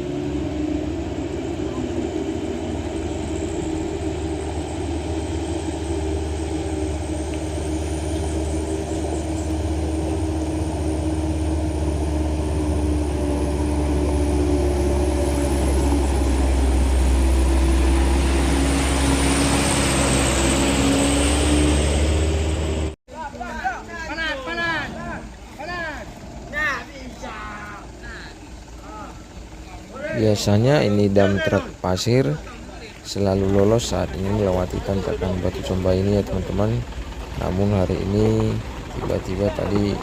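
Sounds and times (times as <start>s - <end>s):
diesel truck engine under load: 0.0s - 23.0s, 23.8s - 40.0s.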